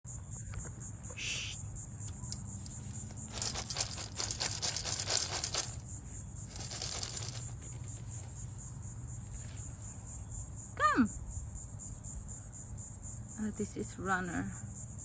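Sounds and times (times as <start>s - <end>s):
crickets chirring: 0.1s - 15.0s
crinkling and rustling: 3.1s - 5.8s, 6.5s - 8.4s.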